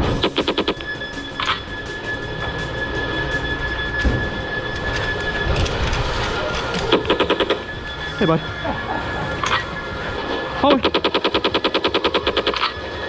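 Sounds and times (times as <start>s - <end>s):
held high tone: 0.0s - 11.5s.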